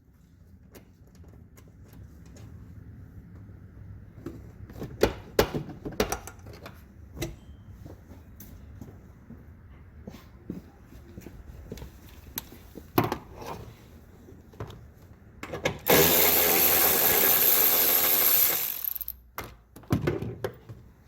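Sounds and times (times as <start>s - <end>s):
handheld power tool running: 15.9s - 19.2s.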